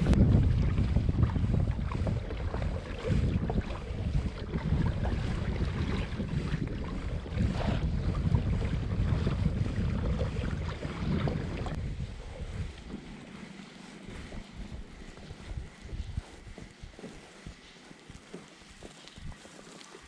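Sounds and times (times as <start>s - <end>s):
wind buffeting microphone: 0.0s - 19.6s
water against kayak hull: 0.0s - 20.0s.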